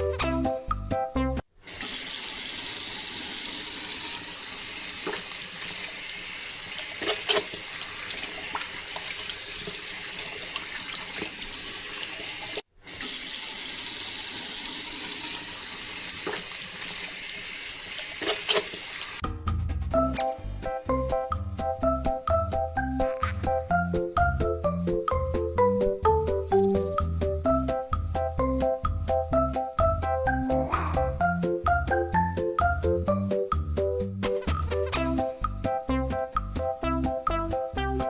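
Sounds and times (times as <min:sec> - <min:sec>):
water gushing from pump hose: 0:01.6 - 0:19.2.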